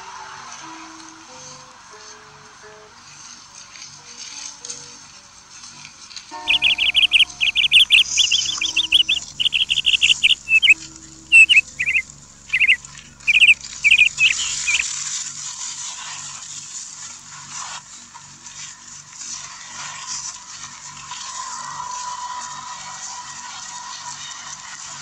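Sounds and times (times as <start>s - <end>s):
steady high hiss: 6.3s - 14.9s
bird chirping: 6.4s - 14.8s.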